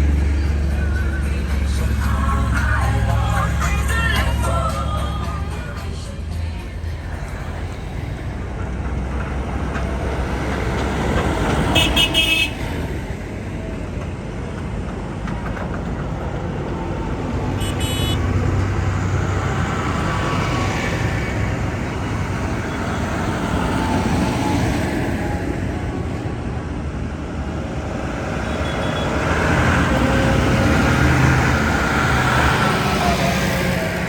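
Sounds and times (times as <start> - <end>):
tractor engines running: 0.0 - 34.0
horn tooting: 11.6 - 12.7, 17.5 - 18.4.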